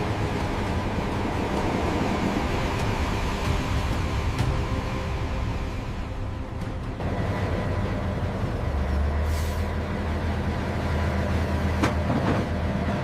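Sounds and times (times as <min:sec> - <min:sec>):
freight train rumbling: 0:00.0 - 0:13.0
air-brake hiss: 0:09.2 - 0:09.7.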